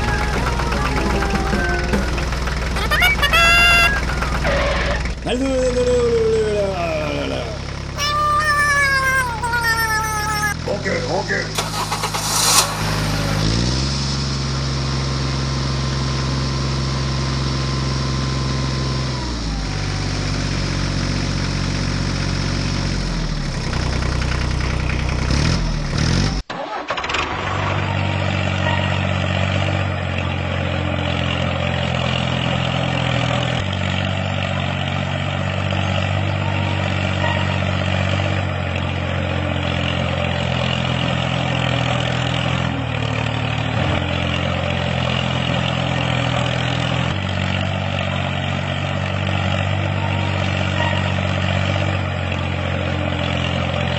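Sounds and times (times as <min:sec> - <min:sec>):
engine running: 0:00.0 - 0:08.0.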